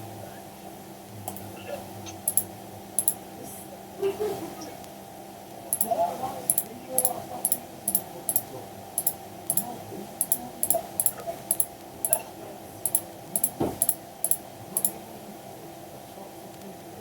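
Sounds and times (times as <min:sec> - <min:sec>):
faint steady hum: 0:00.0 - 0:17.0
computer mouse and keyboard clicking: 0:01.3 - 0:01.5, 0:02.1 - 0:03.2, 0:05.7 - 0:15.0.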